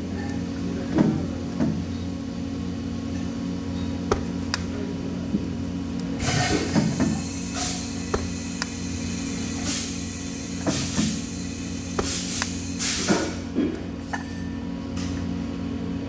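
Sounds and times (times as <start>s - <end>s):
machine hum: 0.0s - 16.0s
short hissing bursts: 6.2s - 13.4s.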